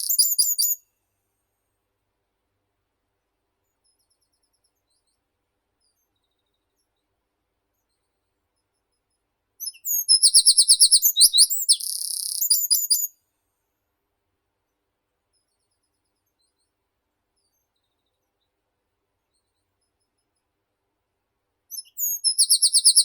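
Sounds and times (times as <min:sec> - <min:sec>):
songbird singing: 0:00.0 - 0:00.8, 0:09.6 - 0:13.2, 0:21.7 - 0:23.0.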